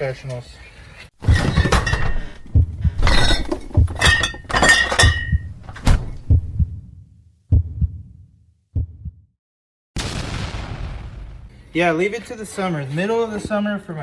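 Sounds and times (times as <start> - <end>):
knocks and clattering: 1.2 - 6.3.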